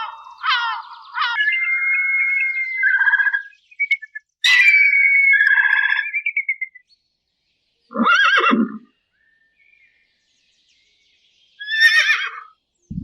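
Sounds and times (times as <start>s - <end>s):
horse whinnying: 7.9s - 8.9s, 11.6s - 12.5s.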